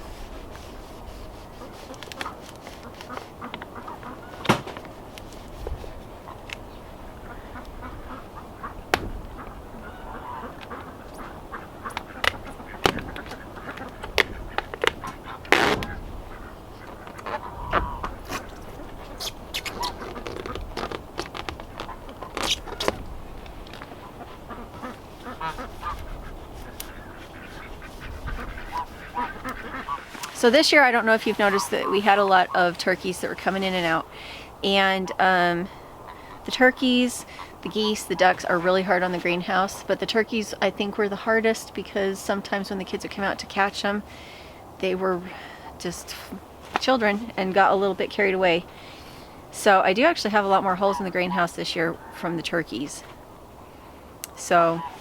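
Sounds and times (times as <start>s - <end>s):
geese honking: 1.5s - 4.5s, 7.2s - 20.5s, 23.9s - 34.0s
ducks quacking: 1.5s - 4.6s, 7.2s - 20.6s, 23.9s - 33.2s
plastic sheeting crackling: 18.2s - 24.0s, 26.6s - 33.9s.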